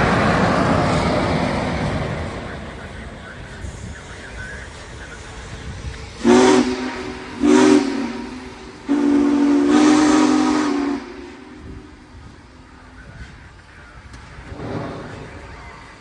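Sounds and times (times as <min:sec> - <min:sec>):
steam whistle blasts: 0:06.2 - 0:11.9.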